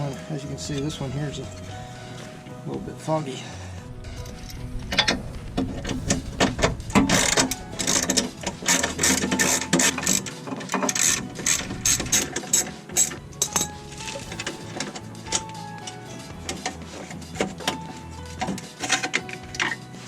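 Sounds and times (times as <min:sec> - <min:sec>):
ratchet wrench clicking: 0:08.7 - 0:15.6.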